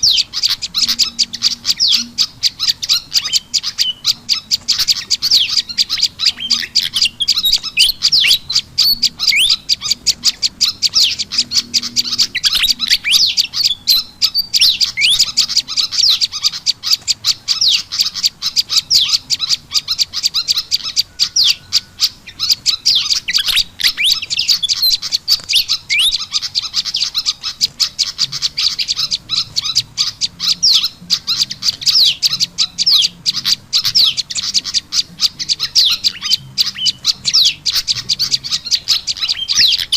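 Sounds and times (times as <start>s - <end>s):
rapid high bird chirps: 0.0s - 39.9s.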